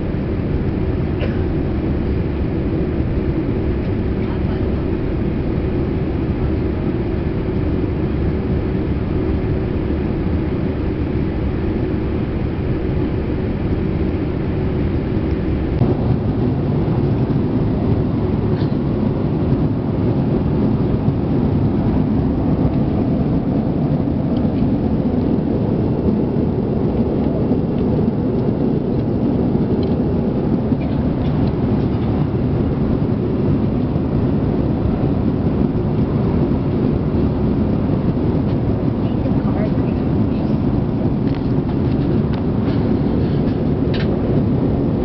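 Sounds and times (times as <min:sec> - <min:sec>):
jet engine roar in cabin: 0:00.0 - 0:45.0.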